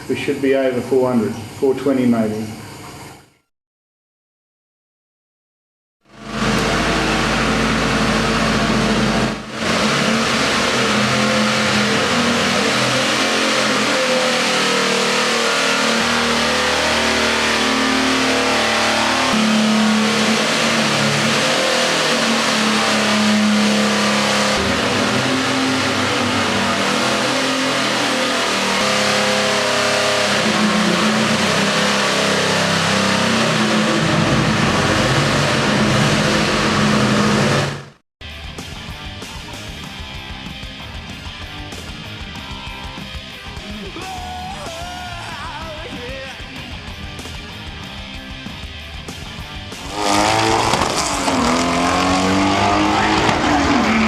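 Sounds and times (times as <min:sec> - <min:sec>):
drag-race engine revving: 0:06.1 - 0:38.0, 0:45.5 - 0:54.0.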